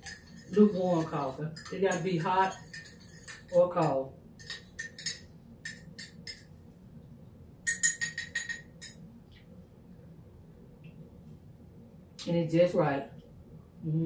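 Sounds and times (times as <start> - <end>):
spoon clinking against mug: 0.0 - 6.5, 7.7 - 9.0.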